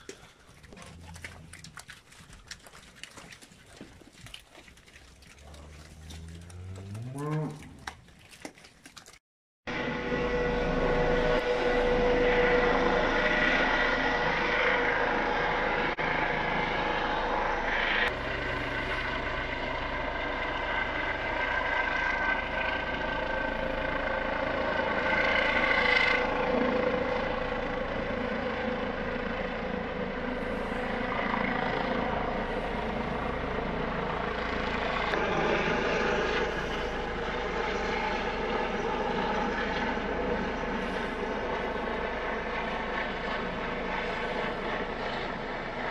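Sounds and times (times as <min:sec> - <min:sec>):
helicopter turbine and rotor: 0:09.7 - 0:45.9.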